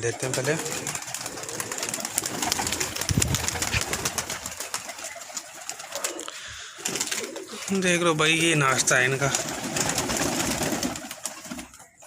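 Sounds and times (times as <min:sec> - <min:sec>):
pigeon cooing: 0:00.0 - 0:07.8.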